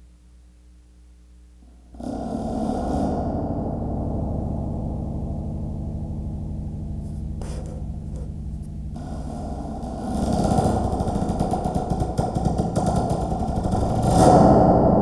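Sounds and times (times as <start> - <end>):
short scrape: 7.0 - 9.2.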